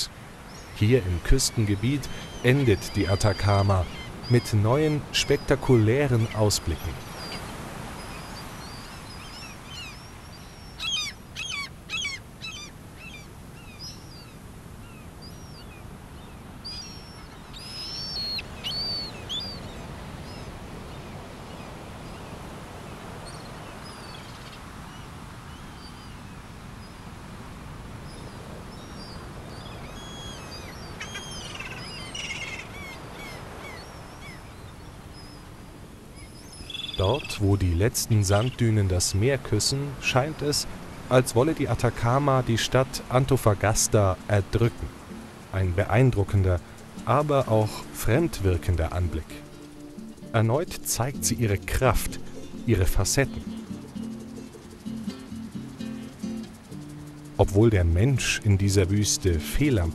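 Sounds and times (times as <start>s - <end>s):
birds chirping: 0.0s - 27.1s, 28.0s - 59.9s
steady background hiss: 0.0s - 59.9s.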